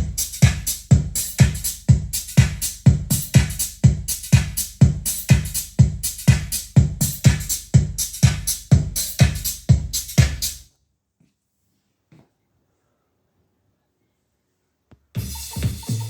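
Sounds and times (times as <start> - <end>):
electronic dance music: 0.0 - 10.6, 15.2 - 16.0.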